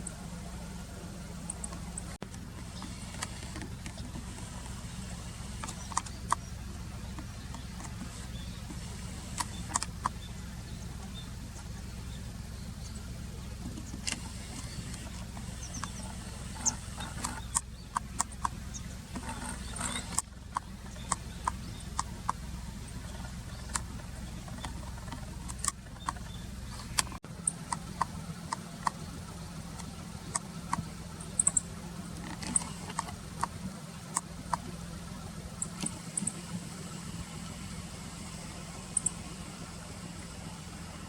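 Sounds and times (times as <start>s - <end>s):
distant traffic rumble: 0.0s - 41.0s
sharp clicks in dry grass: 1.4s - 10.2s, 29.7s - 34.8s.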